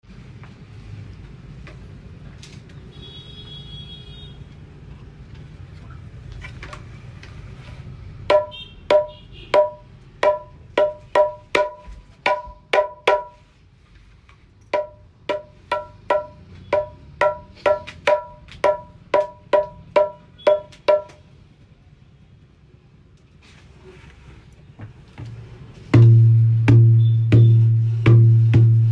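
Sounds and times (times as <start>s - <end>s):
dholak drum strokes: 8.2s - 13.5s, 14.8s - 21.2s, 25.8s - 28.9s.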